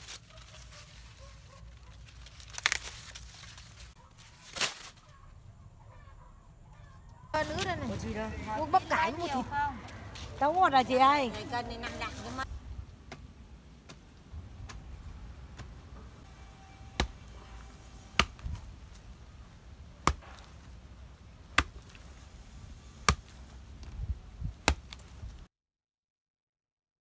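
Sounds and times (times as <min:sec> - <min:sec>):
sharp chopping strikes: 0:17.0 - 0:17.3, 0:18.1 - 0:18.6, 0:20.0 - 0:20.6, 0:21.5 - 0:22.0, 0:23.0 - 0:23.4, 0:24.6 - 0:25.0.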